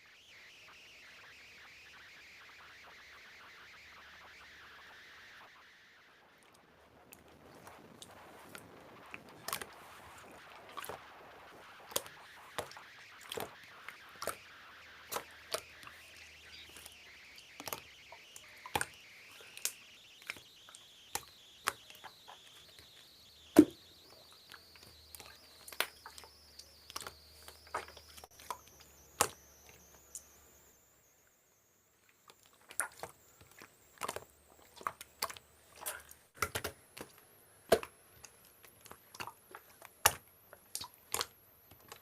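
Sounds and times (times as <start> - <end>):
slime clicking and popping: 9.4 - 9.7, 10.7 - 11.0, 17.6 - 17.8, 18.6 - 22.8, 24.5 - 26.3, 26.9 - 30.2, 32.3 - 42.0.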